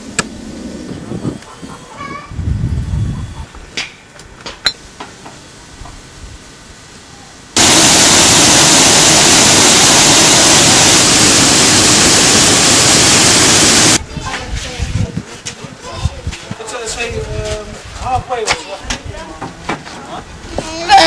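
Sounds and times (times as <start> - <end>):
loud steady rushing hiss: 4.8 - 14.0.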